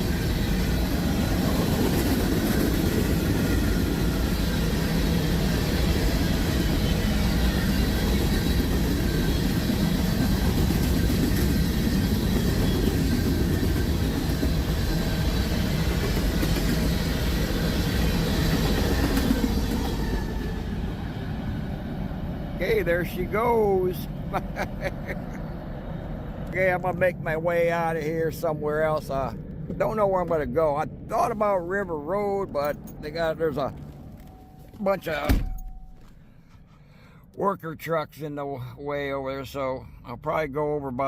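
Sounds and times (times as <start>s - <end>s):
train wheels on rails: 0.0s - 21.4s.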